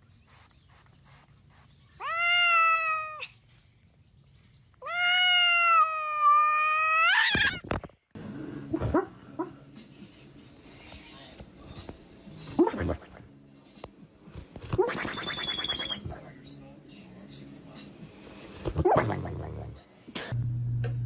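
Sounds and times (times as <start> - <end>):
cat meowing: 2.0 - 3.4, 4.8 - 7.6.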